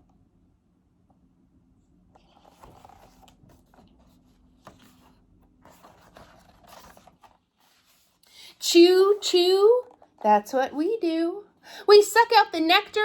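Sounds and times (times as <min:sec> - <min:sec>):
paper pages rustling: 0:02.2 - 0:08.3.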